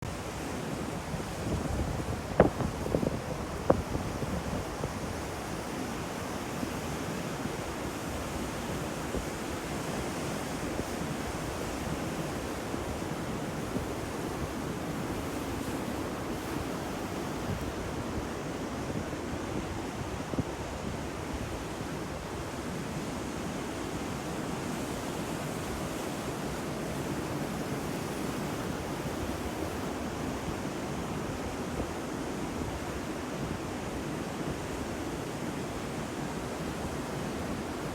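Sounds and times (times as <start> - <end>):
sea surf: 0.0 - 37.9
stormy wind: 0.1 - 23.4.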